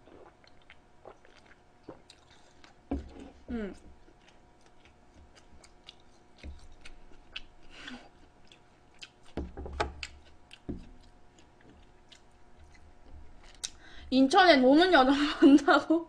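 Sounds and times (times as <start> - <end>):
chewing and mouth clicks: 0.1 - 2.8, 4.0 - 13.8.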